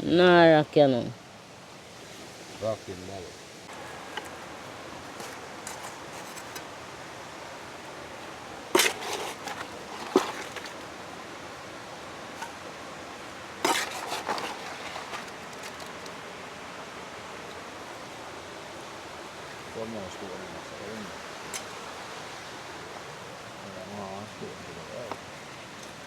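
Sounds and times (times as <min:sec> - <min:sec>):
stones knocking on stone: 0:08.8 - 0:10.8.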